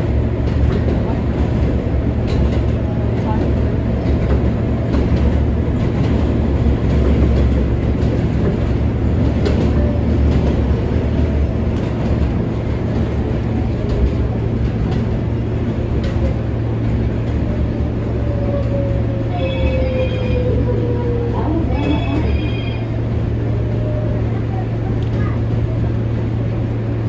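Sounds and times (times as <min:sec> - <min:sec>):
subway train rumbling: 0:00.0 - 0:27.0
sharp track clicks: 0:00.4 - 0:17.4.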